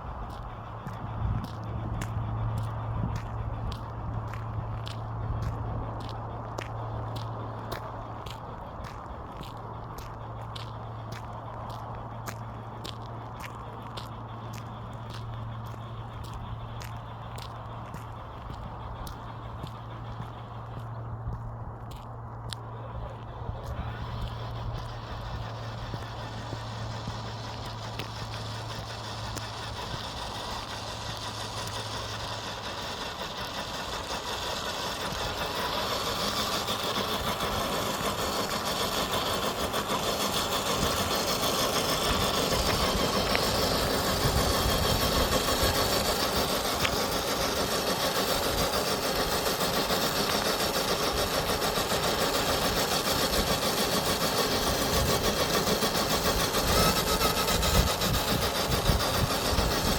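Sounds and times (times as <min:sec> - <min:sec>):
electric motor and gearbox whirring: 0:00.0 - 0:59.9.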